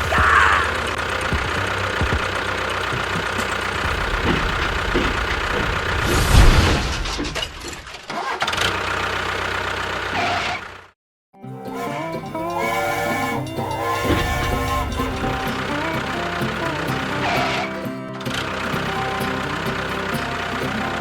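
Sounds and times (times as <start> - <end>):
small machine motor running: 11.8 - 17.7.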